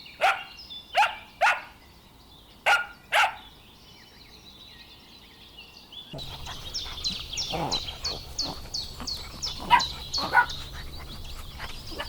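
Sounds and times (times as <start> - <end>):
birds chirping: 0.0 - 12.0
dog barking: 0.2 - 1.7, 2.6 - 3.4, 9.6 - 10.6.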